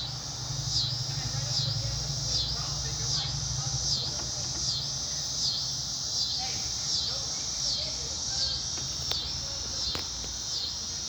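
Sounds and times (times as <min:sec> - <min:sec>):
high-pitched insect chorus: 0:00.0 - 0:11.0
steady low hum: 0:00.0 - 0:11.0.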